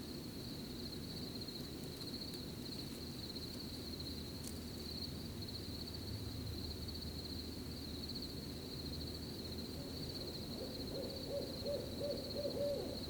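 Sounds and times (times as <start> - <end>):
crickets chirping: 0.0 - 13.0
leaves rustling in wind: 0.0 - 13.0
owl hooting: 9.8 - 13.0.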